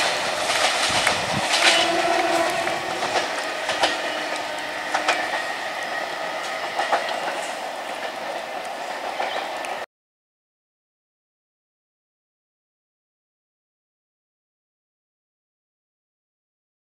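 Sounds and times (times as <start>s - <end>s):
wheels clicking over rail joints: 0.0s - 9.8s
train rumbling: 0.0s - 9.9s.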